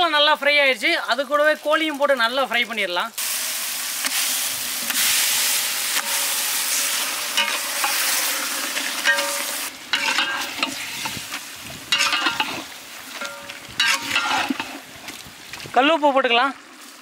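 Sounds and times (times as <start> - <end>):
chicken frying in hot oil: 0.0 - 17.0
metal ladle scraping and clanking pot: 5.9 - 15.2.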